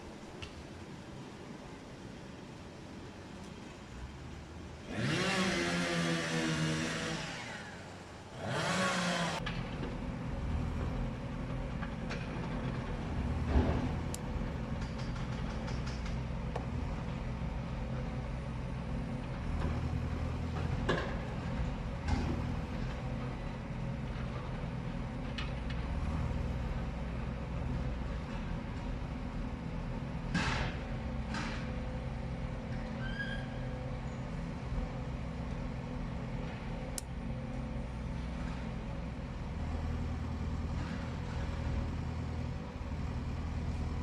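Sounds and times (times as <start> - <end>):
vehicle engine revving: 4.8 - 9.4.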